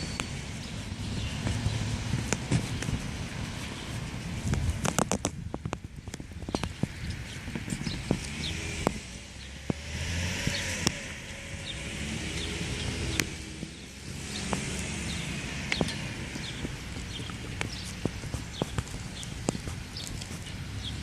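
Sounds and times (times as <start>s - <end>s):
cars passing: 0.0s - 5.2s, 6.2s - 21.0s
sharp clicks and taps: 16.6s - 20.4s.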